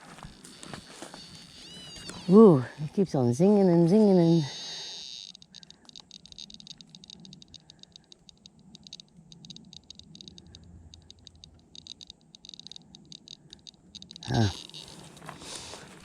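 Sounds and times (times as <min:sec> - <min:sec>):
meter speaker clicking rapidly: 0:05.3 - 0:14.8.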